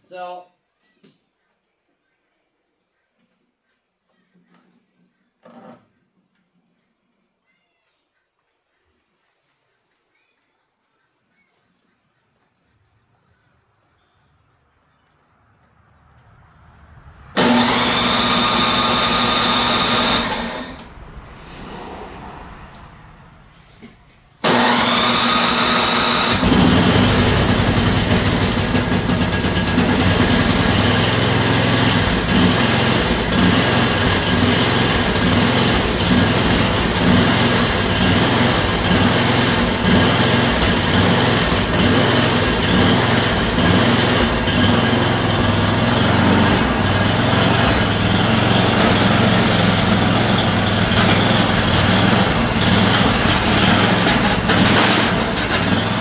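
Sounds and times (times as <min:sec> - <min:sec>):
electric starter whine: 0:17.2 - 0:21.0, 0:24.4 - 0:56.0
snowblower engine running: 0:17.3 - 0:20.9, 0:24.4 - 0:56.0.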